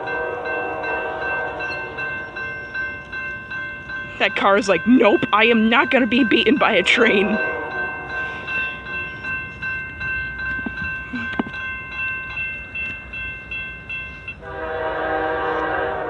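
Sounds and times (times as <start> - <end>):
locomotive horn: 0.0 - 2.1, 6.8 - 8.4, 14.4 - 16.0
crossing bell ringing: 0.0 - 15.1.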